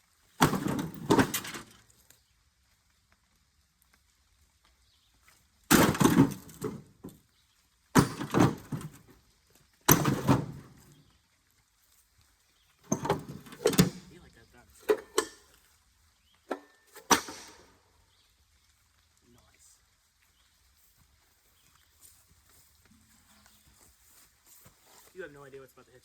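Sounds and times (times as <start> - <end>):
scrap metal clattering crashes: 0.4 - 1.7, 5.7 - 6.9, 8.0 - 9.0, 9.9 - 10.8.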